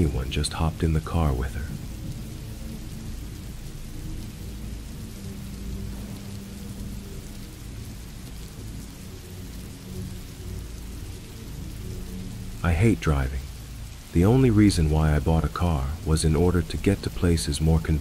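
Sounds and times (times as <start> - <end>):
ambient background music: 0.0 - 18.0
steady rain hissing: 0.0 - 18.0
deep low rumble: 1.4 - 12.6.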